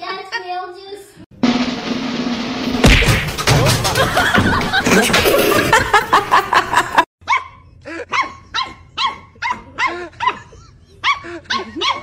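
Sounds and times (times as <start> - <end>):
loud rapid repeated sounds: 1.4 - 5.3
puppy yipping: 7.2 - 12.0.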